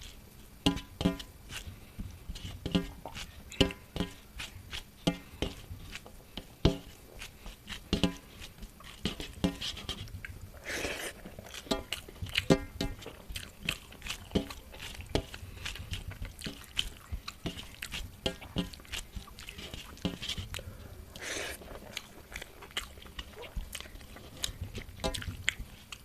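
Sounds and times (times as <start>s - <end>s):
person chewing with wet mouth smacks: 2.9s - 3.8s, 10.0s - 26.0s.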